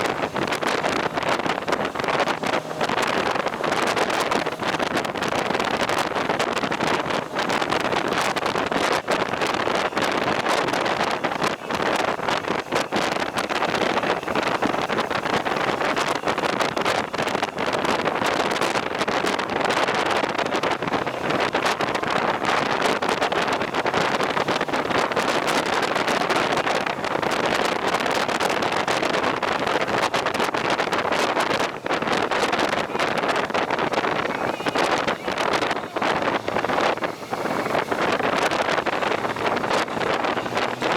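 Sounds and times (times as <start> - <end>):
rushing road and air noise: 0.0 - 40.9
wind buffeting microphone: 0.0 - 40.9.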